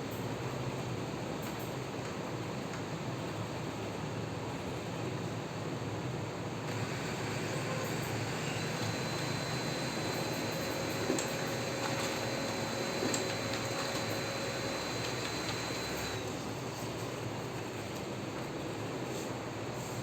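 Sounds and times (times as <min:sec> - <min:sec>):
laser printer running: 0:06.7 - 0:16.4.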